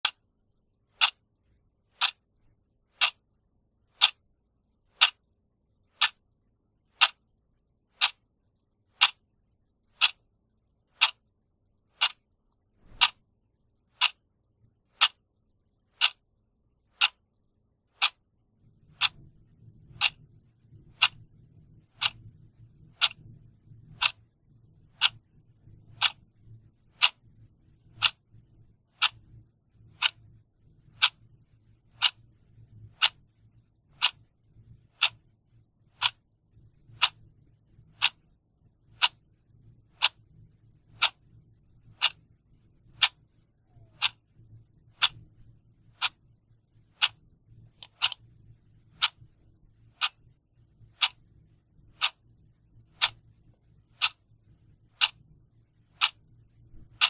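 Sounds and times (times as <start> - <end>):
clock ticking: 0.0 - 0.2, 0.9 - 1.2, 1.9 - 2.3, 2.9 - 3.3, 3.9 - 4.3, 4.9 - 5.2, 5.9 - 6.3, 6.9 - 7.2, 7.9 - 8.2, 8.9 - 9.2, 9.9 - 10.2, 10.9 - 11.2, 11.9 - 13.2, 13.9 - 14.2, 14.9 - 15.2, 15.9 - 16.3, 16.9 - 17.2, 17.9 - 18.2, 18.9 - 24.3, 24.9 - 28.3, 28.9 - 31.3, 31.9 - 32.3, 32.9 - 33.3, 33.9 - 34.3, 34.9 - 35.2, 35.9 - 36.2, 36.8 - 38.3, 38.9 - 39.3, 39.9 - 42.3, 42.9 - 45.3, 45.9 - 46.3, 46.9 - 48.3, 48.9 - 50.3, 50.9 - 55.2, 55.9 - 57.0
faint low hum: 0.0 - 57.0.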